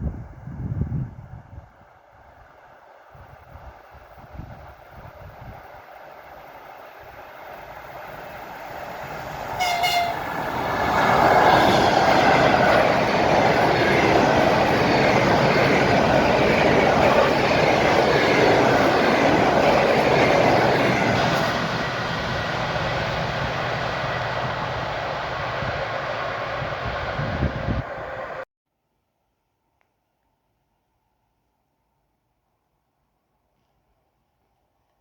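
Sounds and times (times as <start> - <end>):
train passing at speed: 0.0 - 28.5
train horn blast: 9.5 - 10.4.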